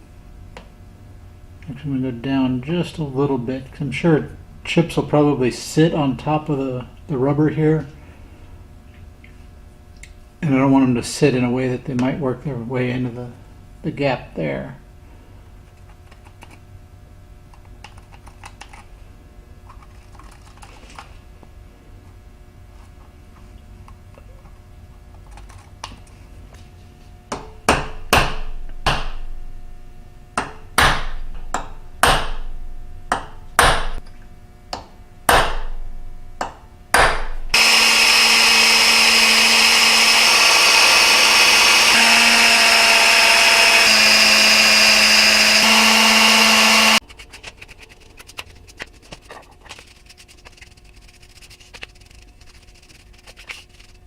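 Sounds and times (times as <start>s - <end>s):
electric drill running: 37.5s - 47.0s.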